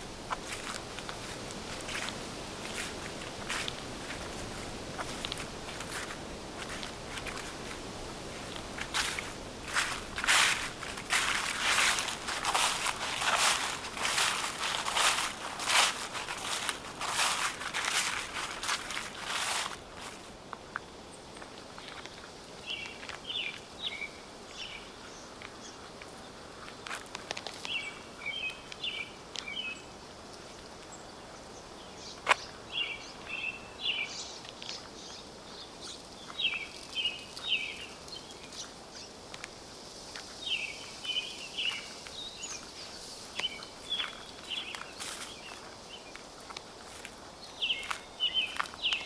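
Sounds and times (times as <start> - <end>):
songbird singing: 0.0 - 49.0.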